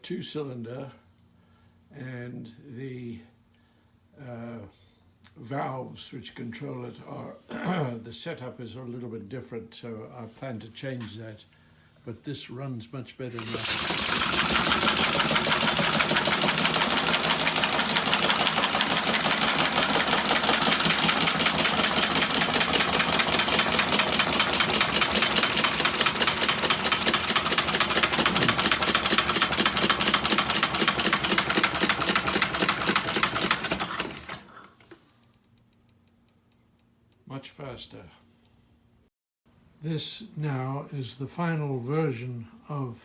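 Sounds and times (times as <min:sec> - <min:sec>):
air hissing: 0:13.3 - 0:29.2
model engine clattering: 0:13.3 - 0:35.0.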